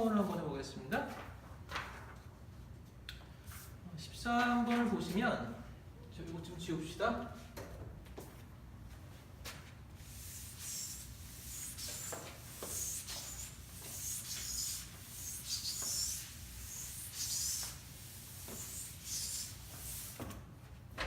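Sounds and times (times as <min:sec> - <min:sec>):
eraser wiping a board: 0:10.0 - 0:20.3.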